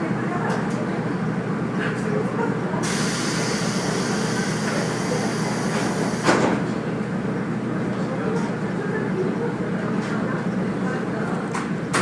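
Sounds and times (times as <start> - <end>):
railcar hum: 0.0 - 12.0
compressed air hiss: 2.8 - 6.3.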